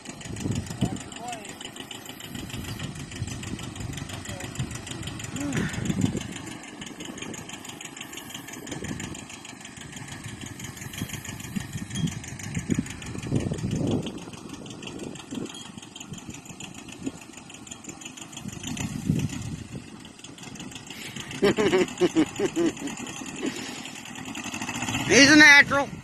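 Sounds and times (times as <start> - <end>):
uneven low rumbles: 0.0 - 17.6
tractor engine running: 0.0 - 26.0.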